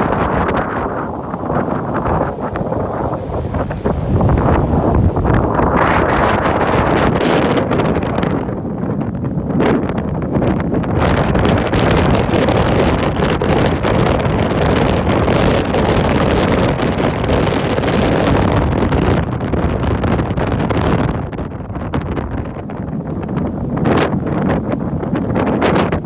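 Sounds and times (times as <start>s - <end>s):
ocean waves rushing: 0.0s - 18.7s
wind buffeting microphone: 0.0s - 26.0s.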